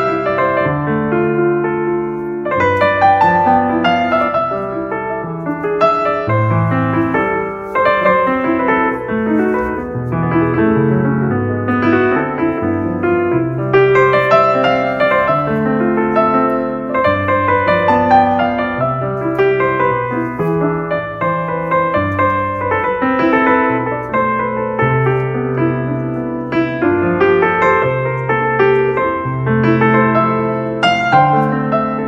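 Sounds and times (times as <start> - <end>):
gentle piano music: 0.0 - 32.0.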